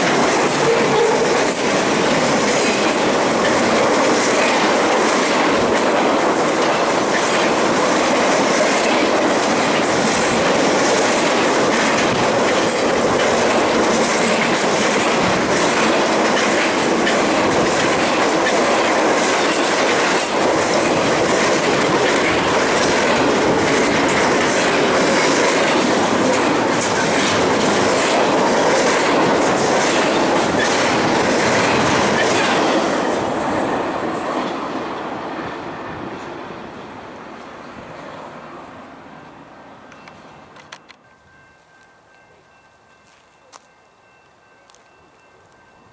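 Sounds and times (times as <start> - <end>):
wheels clicking over rail joints: 0.0 - 33.6
train cars rolling past: 0.0 - 45.9.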